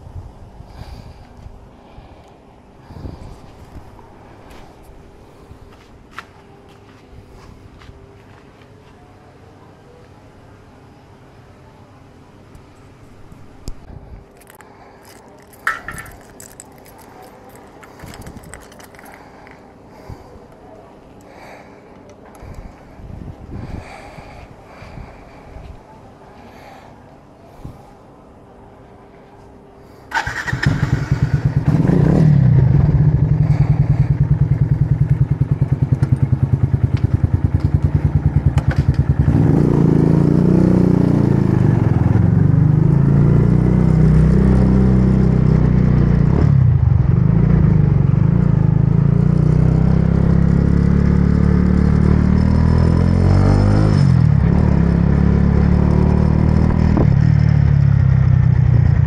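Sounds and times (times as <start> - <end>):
motorbike engine: 14.4 - 20.3, 30.1 - 59.0.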